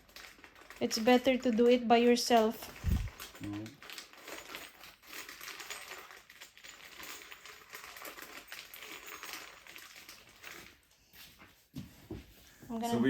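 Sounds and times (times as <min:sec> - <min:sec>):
furniture parts clicking and rustling: 0:02.3 - 0:12.5.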